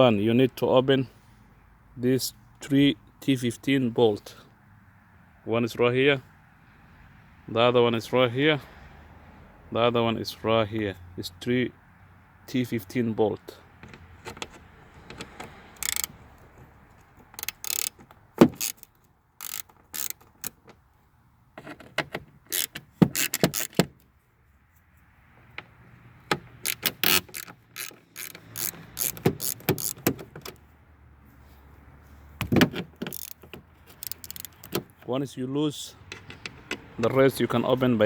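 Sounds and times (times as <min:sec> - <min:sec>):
wrench clicking on bolts: 0:13.9 - 0:16.6, 0:17.2 - 0:20.8, 0:21.7 - 0:24.0, 0:26.4 - 0:30.6, 0:32.4 - 0:35.0.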